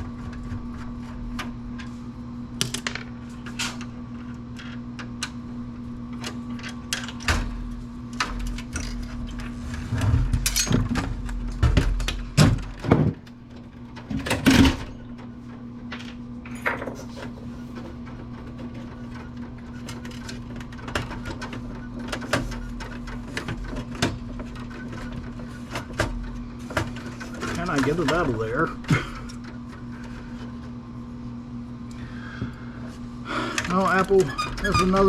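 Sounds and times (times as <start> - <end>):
steady low hum: 0.0 - 35.0
plastic and metal parts clattering: 15.9 - 29.6.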